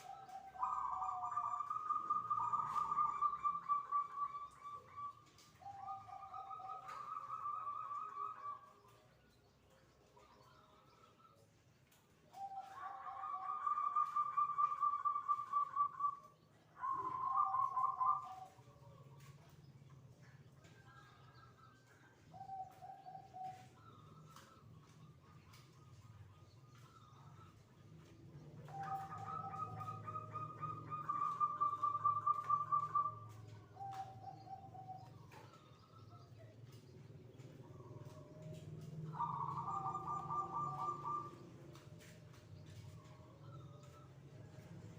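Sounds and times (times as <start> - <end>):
dove cooing song: 0.0 - 9.1, 12.2 - 19.5, 20.2 - 44.9.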